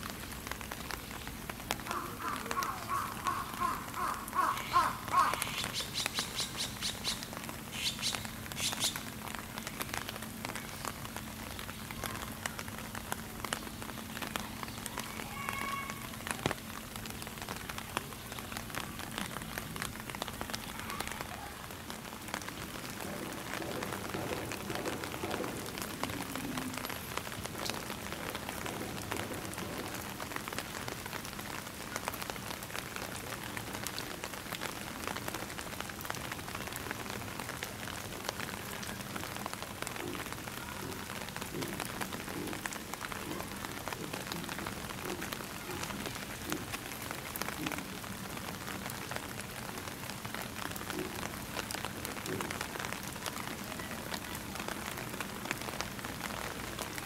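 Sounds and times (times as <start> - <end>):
light rain pattering: 0.0 - 57.0
crow cawing: 1.9 - 5.8.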